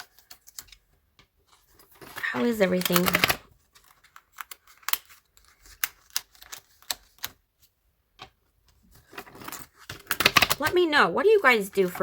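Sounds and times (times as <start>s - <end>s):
planner pages clicking and tapping: 2.0s - 7.4s, 9.1s - 10.9s.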